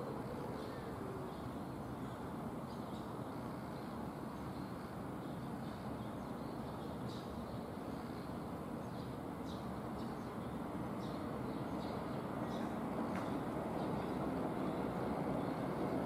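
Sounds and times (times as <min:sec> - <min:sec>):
distant freight train rumble: 0:07.4 - 0:16.0.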